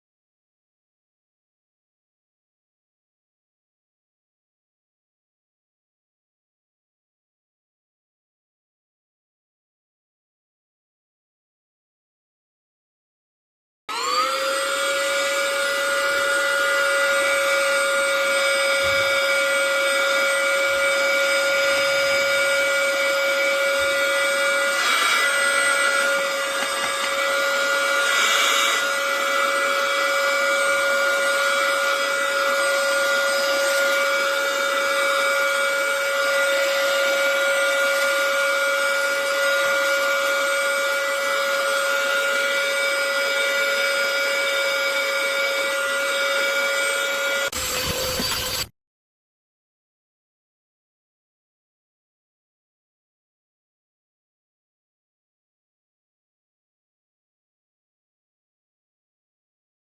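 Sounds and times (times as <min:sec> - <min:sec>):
handheld vacuum running: 0:13.9 - 0:48.7.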